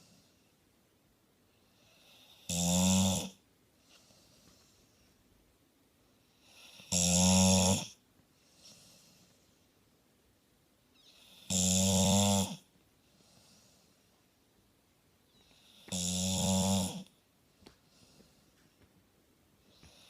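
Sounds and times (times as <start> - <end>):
faint breaths: 0.0 - 0.7, 3.7 - 6.9, 8.2 - 10.0, 12.9 - 14.4, 17.0 - 20.0
dog snoring: 1.6 - 3.4, 6.3 - 9.2, 11.0 - 12.7, 15.4 - 17.1, 19.7 - 20.0.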